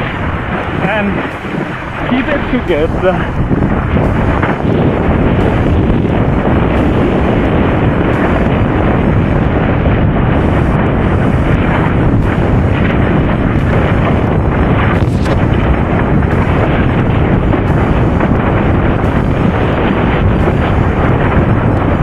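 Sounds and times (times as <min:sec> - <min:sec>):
strong wind on microphone: 0:00.0 - 0:22.0.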